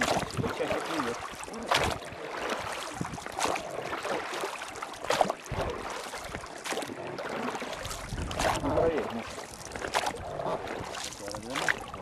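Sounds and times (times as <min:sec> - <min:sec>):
oars splashing in water: 0:00.0 - 0:12.0.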